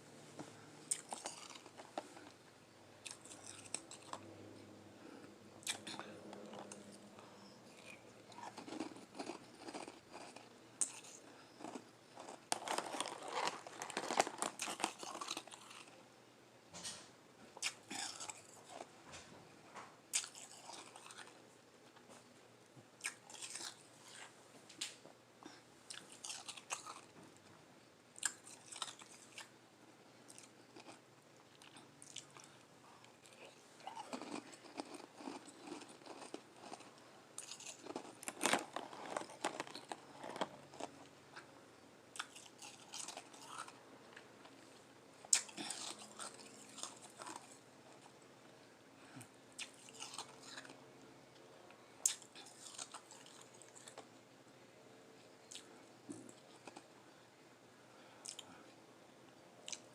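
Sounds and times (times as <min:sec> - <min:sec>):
chewing crunchy ice: 0:00.9 - 0:02.4, 0:03.0 - 0:04.3, 0:05.6 - 0:16.0, 0:17.6 - 0:18.9, 0:20.1 - 0:21.4, 0:23.0 - 0:24.3, 0:25.9 - 0:27.1, 0:28.2 - 0:29.5, 0:30.3 - 0:32.5, 0:33.2 - 0:41.5, 0:42.1 - 0:44.2, 0:45.3 - 0:48.1, 0:49.6 - 0:50.8, 0:52.0 - 0:54.0, 0:56.3 - 0:56.9.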